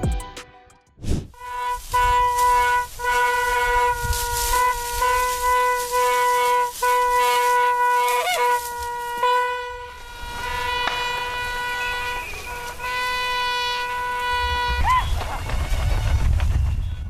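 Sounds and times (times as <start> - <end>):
horn sounding steady note: 1.4 - 14.8.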